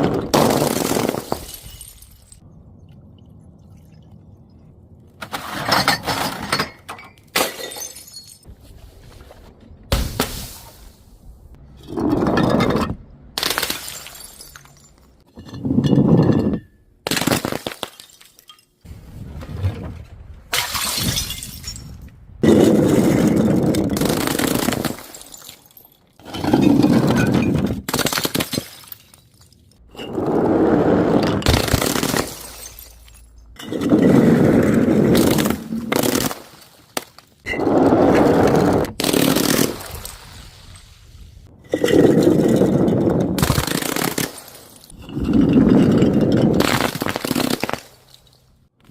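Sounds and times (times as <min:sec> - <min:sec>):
glass bottles shattering: 0:00.3 - 0:02.4, 0:05.4 - 0:08.5, 0:11.8 - 0:16.6, 0:17.3 - 0:18.8, 0:20.5 - 0:22.1, 0:24.0 - 0:30.2, 0:31.3 - 0:34.2.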